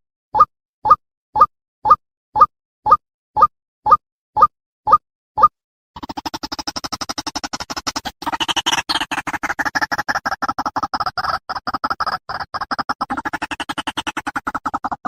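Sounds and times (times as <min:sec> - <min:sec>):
waterhen harsh clucking calls: 0:07.3 - 0:15.0.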